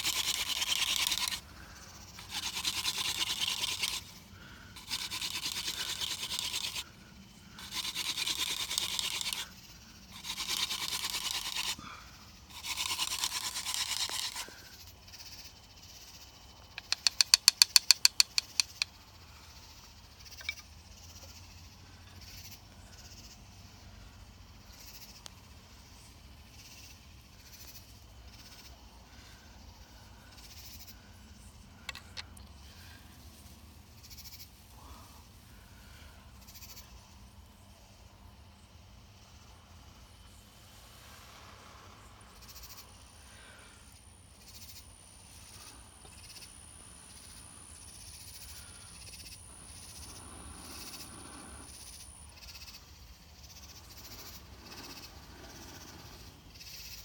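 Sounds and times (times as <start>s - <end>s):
hand drill grinding into wood: 0.0s - 1.4s, 2.2s - 4.1s, 4.8s - 6.8s, 7.6s - 9.5s, 10.1s - 11.9s, 12.5s - 14.6s, 16.8s - 18.9s
faint small scrapes: 0.0s - 4.2s, 4.8s - 6.9s, 7.5s - 11.9s, 12.5s - 14.8s
rapid sharp clicks: 16.8s - 18.9s.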